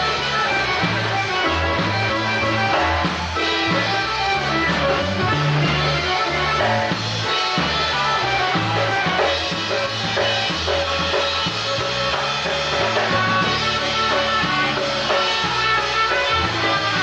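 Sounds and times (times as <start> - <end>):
bass line: 0.0 - 17.0
drums: 0.0 - 17.0
live polka band playing: 0.0 - 17.0.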